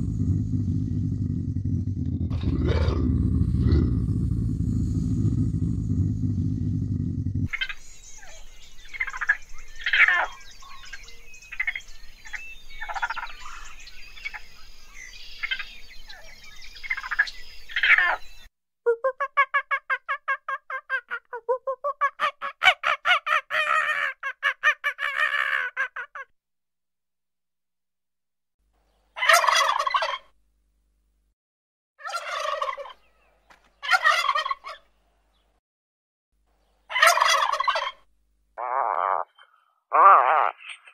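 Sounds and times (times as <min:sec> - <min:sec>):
croaking animal calls: 0:00.0 - 0:07.8, 0:32.0 - 0:33.0, 0:36.9 - 0:38.0, 0:38.6 - 0:40.9
small birds chirping: 0:00.0 - 0:18.5
turkeys gobbling: 0:29.2 - 0:30.2, 0:32.0 - 0:33.0, 0:33.8 - 0:34.8, 0:36.9 - 0:38.0.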